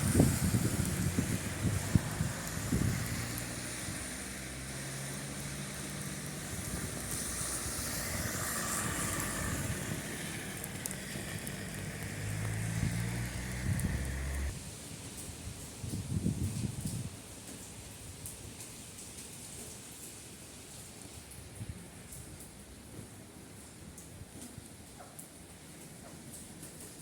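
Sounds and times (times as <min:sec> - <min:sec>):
rain hissing: 0:00.0 - 0:14.9
vehicle engine running: 0:09.6 - 0:14.5.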